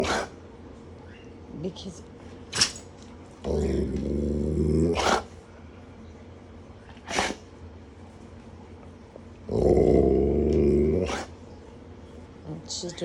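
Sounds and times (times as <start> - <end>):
dog grumbling: 0.0 - 0.4, 3.4 - 5.4, 7.0 - 7.5, 9.4 - 11.4
dog breathy bursts: 7.0 - 7.5.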